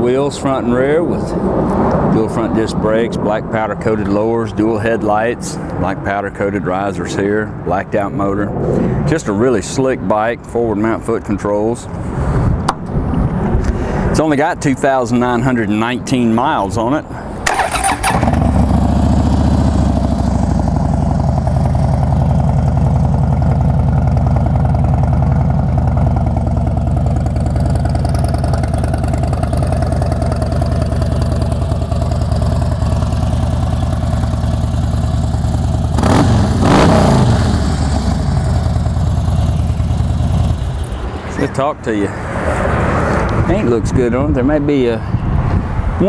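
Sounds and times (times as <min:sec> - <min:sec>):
motorcycle engine idling: 0:17.5 - 0:41.2
motorcycle engine revving: 0:17.5 - 0:41.3.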